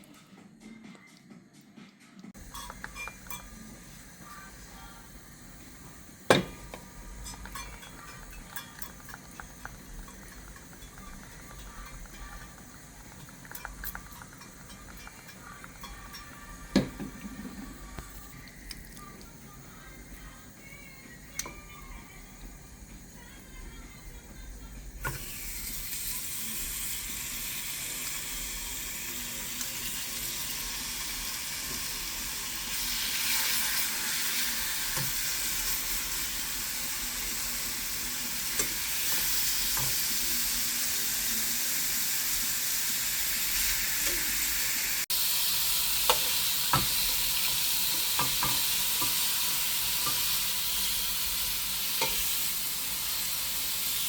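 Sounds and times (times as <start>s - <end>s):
chicken sizzling in a pan: 2.4s - 54.0s.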